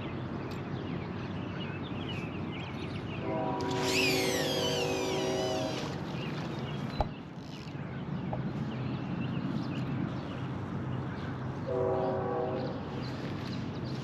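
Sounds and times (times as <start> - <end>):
train horn chord: 3.2 - 4.0, 4.6 - 6.0, 11.7 - 12.9.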